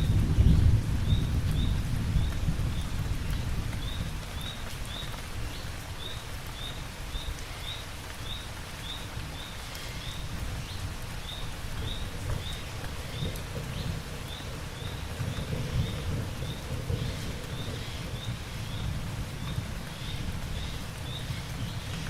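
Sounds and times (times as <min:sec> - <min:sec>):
low rumble of thunder: 0:00.0 - 0:05.6, 0:10.0 - 0:22.0
steady rain falling: 0:00.0 - 0:22.0.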